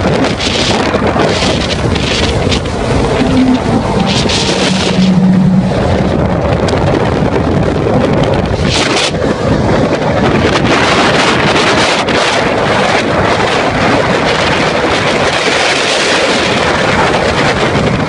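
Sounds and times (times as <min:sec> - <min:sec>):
wind buffeting microphone: 0:00.0 - 0:18.0
car engines passing: 0:01.3 - 0:07.4.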